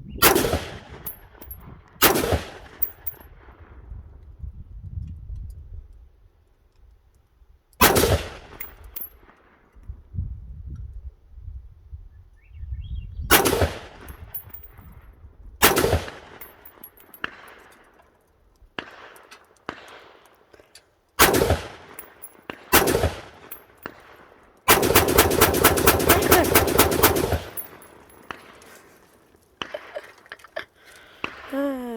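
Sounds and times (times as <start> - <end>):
rifle shots echoing: 0.2 - 3.1, 7.8 - 9.1, 13.3 - 14.4, 15.6 - 17.7, 21.2 - 29.0.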